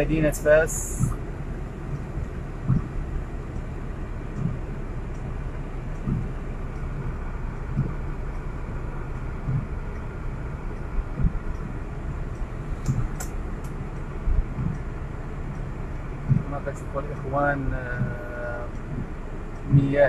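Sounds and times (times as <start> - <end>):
vehicle rumble: 0.0 - 20.0
soft low thump: 0.8 - 3.2, 4.3 - 5.2, 6.0 - 8.2, 9.4 - 10.1, 11.0 - 11.8, 12.8 - 13.2, 14.2 - 14.9, 16.2 - 16.8.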